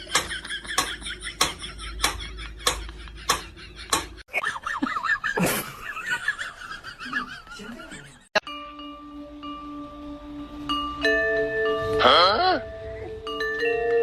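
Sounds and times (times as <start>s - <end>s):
person laughing: 0.0s - 8.3s.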